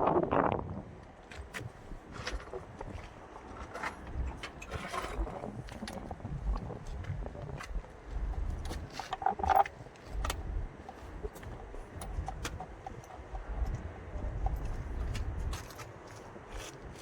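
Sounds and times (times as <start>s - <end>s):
low rumble: 1.7s - 12.6s.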